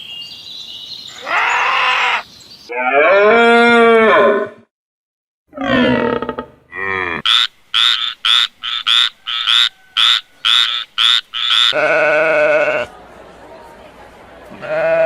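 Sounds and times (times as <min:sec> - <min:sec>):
wavering animal call: 0:01.1 - 0:04.6, 0:05.5 - 0:12.9
frog croaking: 0:05.5 - 0:11.9.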